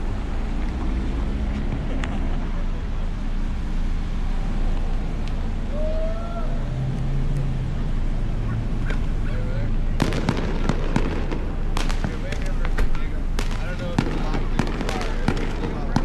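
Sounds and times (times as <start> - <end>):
traffic rumble: 0.0 - 16.0
firecracker pops: 10.0 - 16.0.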